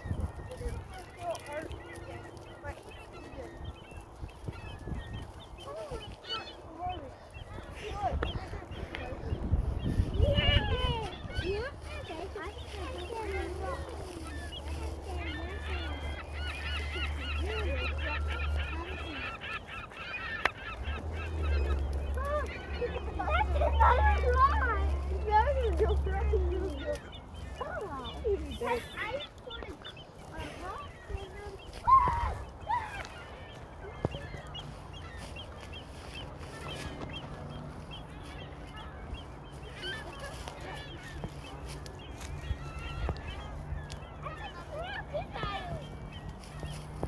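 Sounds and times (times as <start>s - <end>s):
geese honking: 0.0s - 47.0s
waterbirds calling: 0.0s - 47.0s.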